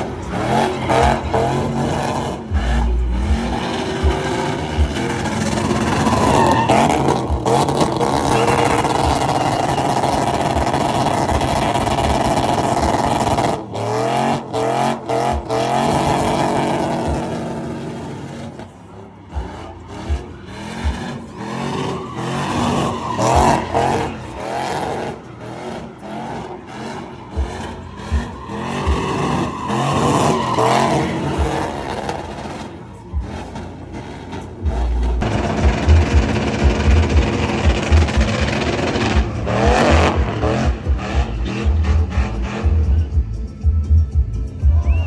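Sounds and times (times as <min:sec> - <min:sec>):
tyre squeal: 0:00.0 - 0:13.7, 0:14.6 - 0:42.6, 0:44.7 - 0:45.0
truck engine revving: 0:00.0 - 0:45.0
exhaust pops: 0:34.3 - 0:43.1.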